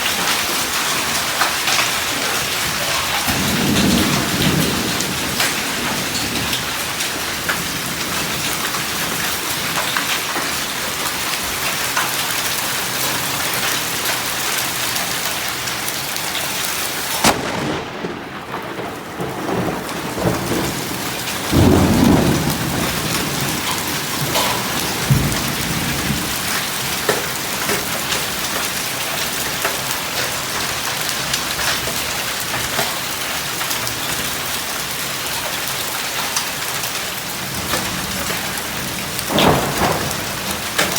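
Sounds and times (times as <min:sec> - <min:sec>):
heavy rain and hail: 0:00.0 - 0:40.9
thunder rumbling: 0:02.4 - 0:10.4, 0:17.1 - 0:28.9, 0:37.2 - 0:40.9.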